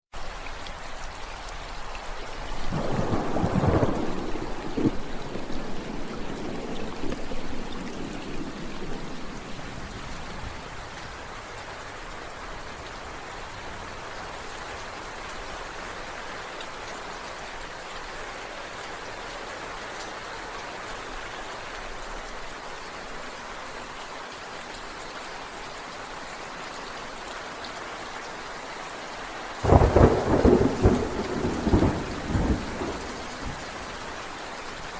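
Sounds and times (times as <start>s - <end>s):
steady rain falling: 0.1s - 34.9s
loud thunder crack: 2.7s - 9.0s, 29.6s - 33.7s
thunder rumbling: 2.7s - 10.7s, 29.6s - 34.0s.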